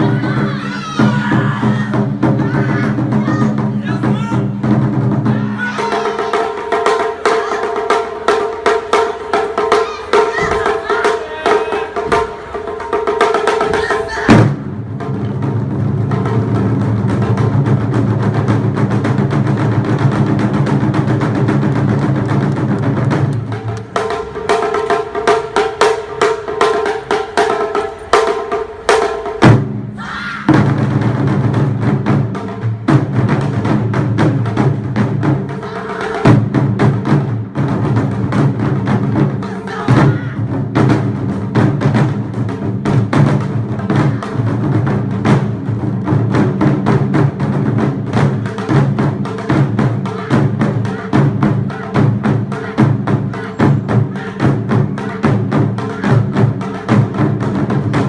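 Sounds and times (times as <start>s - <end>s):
lively drum performance music: 0.0s - 58.0s
low drums: 0.0s - 58.0s.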